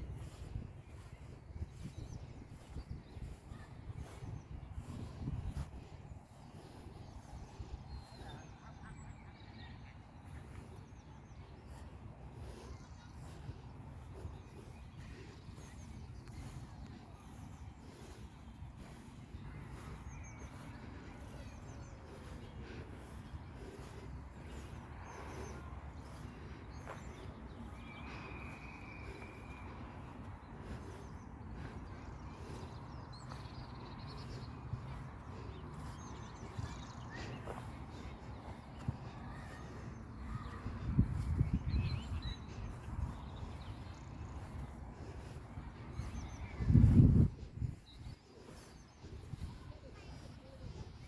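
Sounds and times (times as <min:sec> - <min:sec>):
wind rumbling on microphone: 0:00.0 - 0:09.1, 0:25.0 - 0:51.0.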